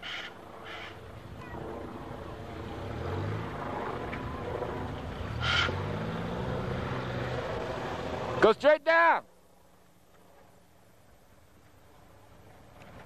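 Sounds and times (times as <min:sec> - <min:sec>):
car engine revving uphill: 0:00.4 - 0:08.7.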